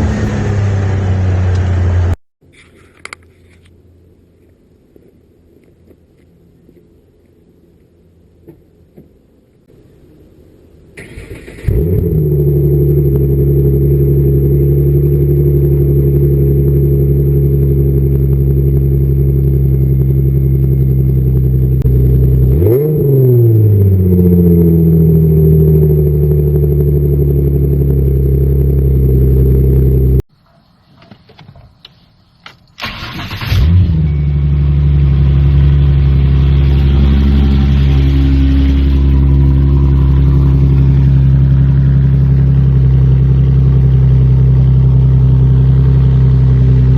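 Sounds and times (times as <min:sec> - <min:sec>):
car engines idling: 0:00.0 - 0:02.2, 0:11.0 - 0:22.8, 0:23.4 - 0:30.2, 0:30.9 - 0:46.9
engine starting: 0:11.0 - 0:12.2, 0:32.8 - 0:34.1
engine throttle blip: 0:32.8 - 0:46.9.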